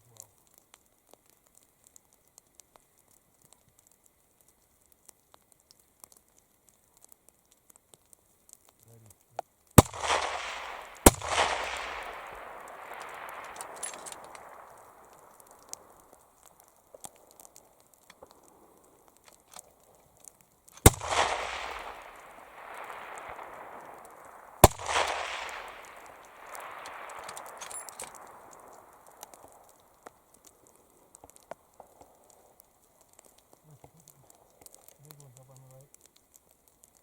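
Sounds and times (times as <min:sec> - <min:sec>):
rifle shots with rolling echo: 0:09.8 - 0:20.1, 0:20.7 - 0:32.9.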